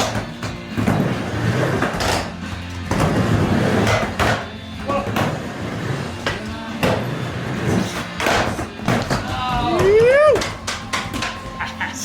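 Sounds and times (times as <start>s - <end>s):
skateboard wheels rolling: 0.0s - 11.6s
skateboard knocking on ramp: 8.2s - 11.6s.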